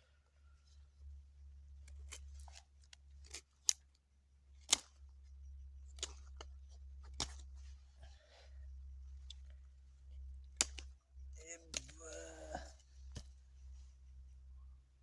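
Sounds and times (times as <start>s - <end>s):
low steady hum: 0.0s - 15.0s
sharp clicks or snips: 4.6s - 5.0s, 10.5s - 11.0s.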